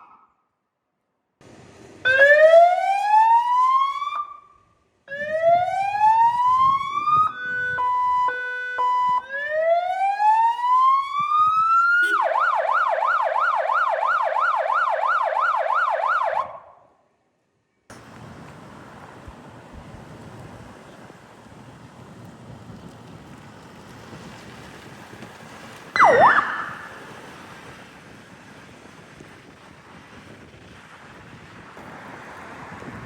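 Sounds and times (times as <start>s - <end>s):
fire truck siren: 0.0s - 0.4s, 2.0s - 16.9s, 25.9s - 27.8s
wind noise on microphone: 5.1s - 9.3s, 11.1s - 12.2s, 17.9s - 33.0s.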